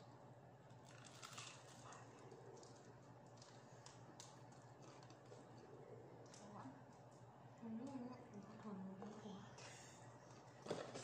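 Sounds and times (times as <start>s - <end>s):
low steady hum: 0.0s - 11.0s
chewing crispy food: 0.6s - 7.2s.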